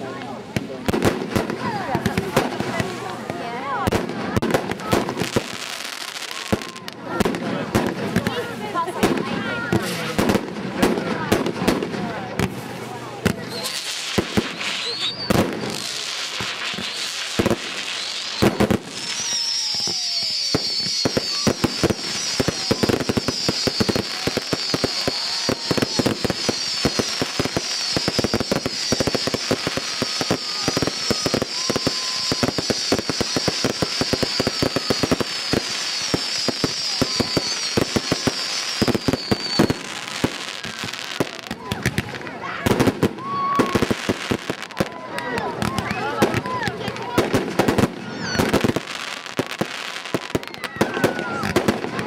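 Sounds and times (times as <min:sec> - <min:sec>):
fireworks bangs and crackling: 0:00.0 - 0:52.0
shrill warbling firework whistle: 0:13.3 - 0:41.5, 0:43.1 - 0:45.0, 0:47.7 - 0:52.0.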